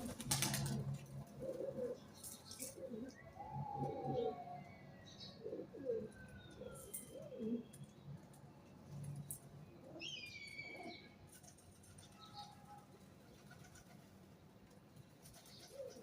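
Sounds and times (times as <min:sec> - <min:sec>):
pigeons cooing: 0:00.0 - 0:07.7, 0:15.4 - 0:16.0.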